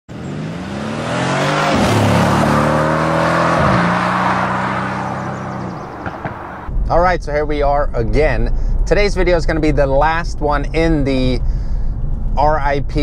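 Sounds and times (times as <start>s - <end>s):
car engine accelerating hard: 0.1s - 6.7s.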